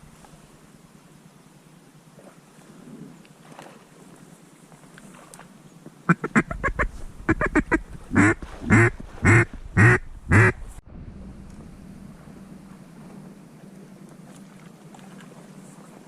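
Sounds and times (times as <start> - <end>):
duck quacking: 6.1 - 10.6.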